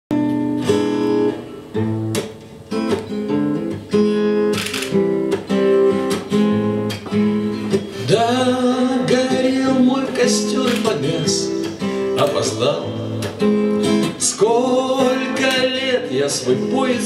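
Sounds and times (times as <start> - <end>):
acoustic guitar playing: 0.1 - 17.0
man singing: 8.0 - 13.2, 14.0 - 17.0.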